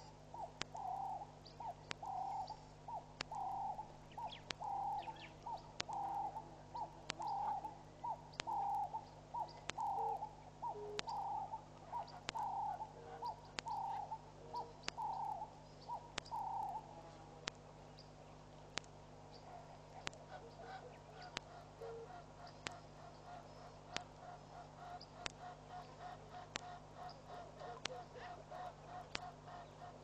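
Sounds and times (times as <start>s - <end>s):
faint high bird chirps: 0.0s - 16.9s
bird calling two-part phrase: 0.4s - 17.0s, 20.3s - 24.1s.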